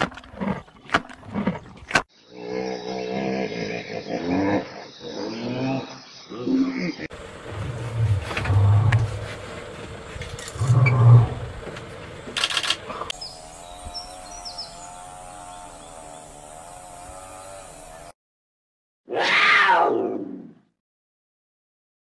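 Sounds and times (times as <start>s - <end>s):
steady wavering hum: 12.9s - 18.1s.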